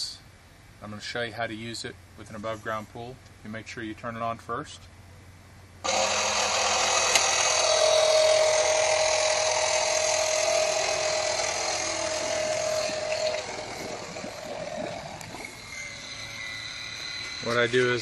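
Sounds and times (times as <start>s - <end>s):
pool vacuum motor whining: 5.8s - 18.0s.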